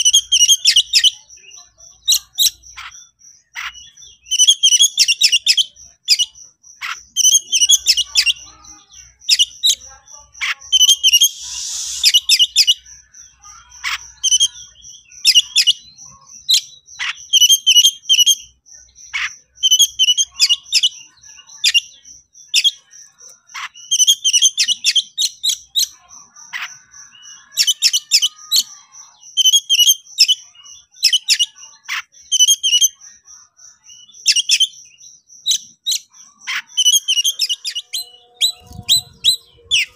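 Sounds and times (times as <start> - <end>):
bird singing whistles and chirps: 10.7 - 12.9, 33.8 - 39.9.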